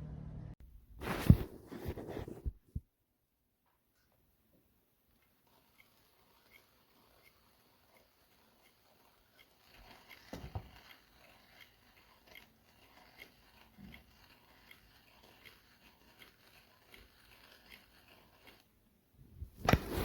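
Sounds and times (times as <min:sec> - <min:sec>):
hand coffee grinder clicking: 0:05.1 - 0:18.7.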